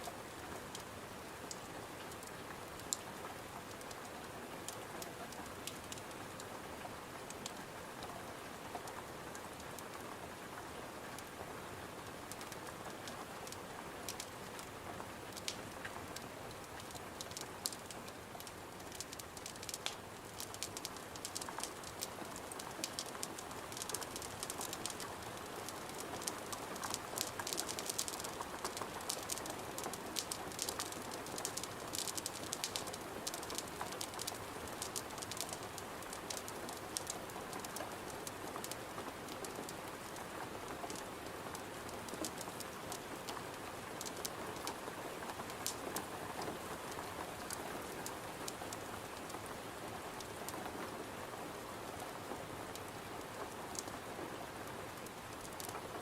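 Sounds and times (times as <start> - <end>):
rain against a window: 0.0 - 56.0
wood fire crackling: 12.1 - 49.4, 54.7 - 55.8.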